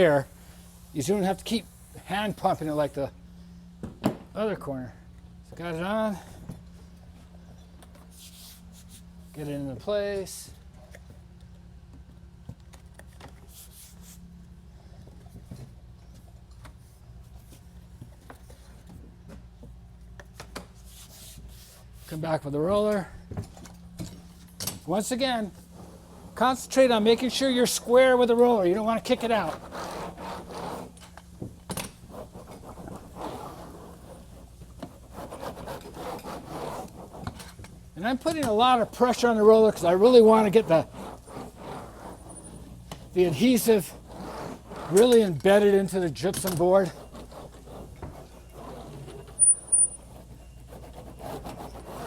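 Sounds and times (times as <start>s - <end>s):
low steady hum: 0.0s - 52.0s
roller scraping drywall corner: 24.9s - 52.0s.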